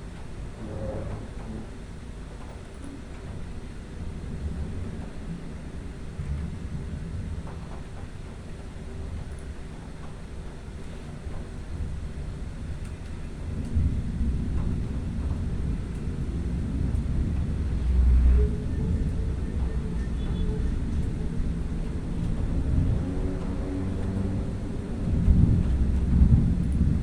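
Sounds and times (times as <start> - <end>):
thunder rumbling: 11.6 - 27.0.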